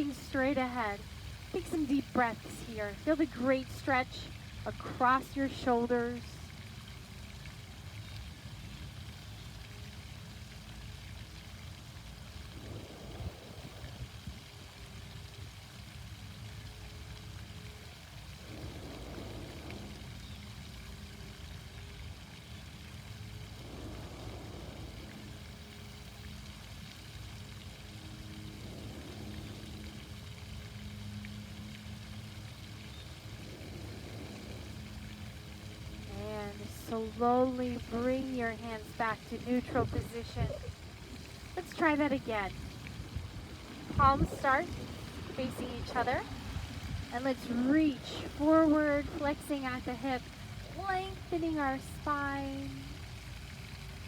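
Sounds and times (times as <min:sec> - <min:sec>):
faint low hum: 0:00.0 - 0:54.0
fountain water splashing: 0:00.0 - 0:54.0
slow deep breaths: 0:11.9 - 0:15.0, 0:17.4 - 0:21.9, 0:22.8 - 0:26.8, 0:27.8 - 0:30.6, 0:32.8 - 0:36.1.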